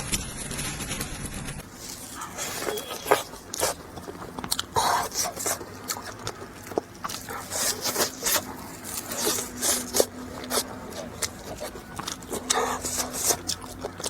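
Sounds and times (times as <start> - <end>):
chewing pastry crunches: 0.1 - 14.0.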